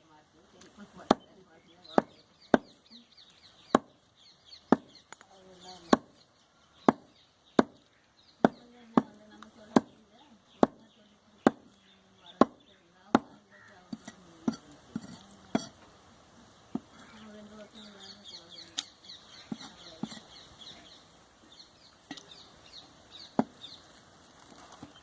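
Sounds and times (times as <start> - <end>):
cleaver chopping on wooden block: 3.7 - 4.0, 4.7 - 5.0, 6.8 - 10.0, 23.3 - 23.6.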